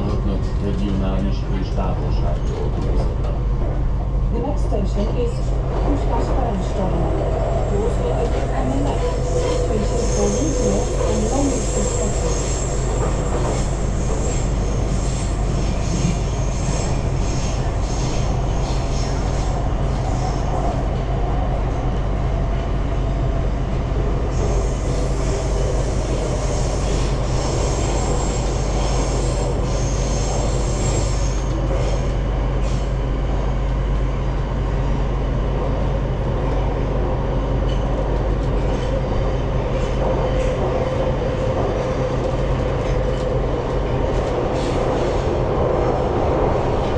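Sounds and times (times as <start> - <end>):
train rumble: 0.0 - 46.9.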